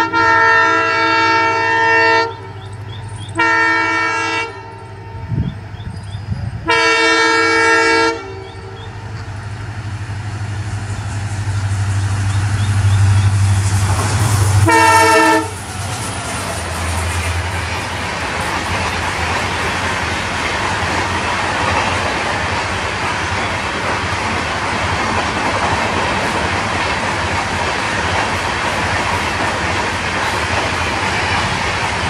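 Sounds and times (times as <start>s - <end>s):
locomotive horn blasts: 0.0s - 2.6s, 3.3s - 5.4s, 6.6s - 9.1s, 14.5s - 15.6s
locomotive engine droning: 0.0s - 32.0s
wheel and rail noise: 0.0s - 32.0s.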